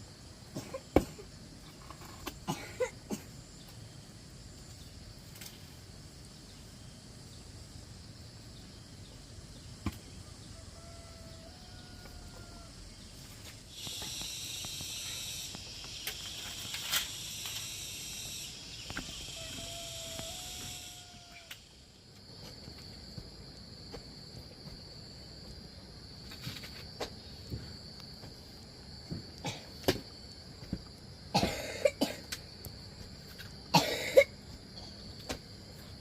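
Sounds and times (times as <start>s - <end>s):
insects droning: 0.0s - 36.0s
faint drawn-out call: 13.7s - 21.8s.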